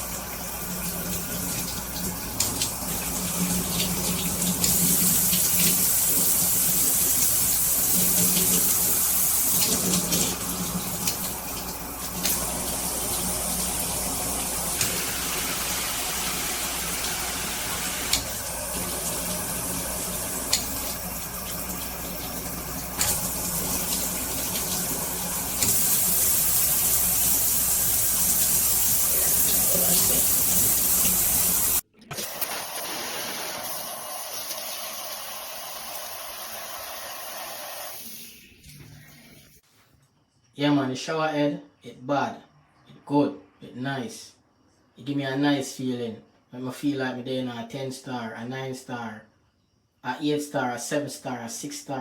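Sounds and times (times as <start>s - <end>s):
shower water spray hissing: 0.0s - 39.6s.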